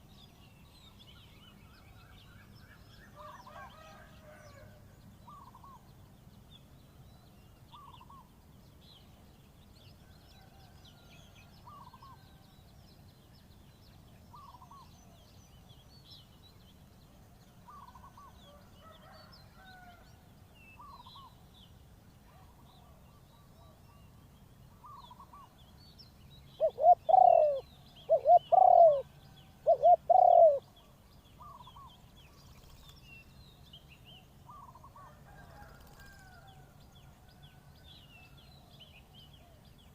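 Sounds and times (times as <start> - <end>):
small birds chirping: 23.2 - 34.8
dove cooing: 26.6 - 30.6.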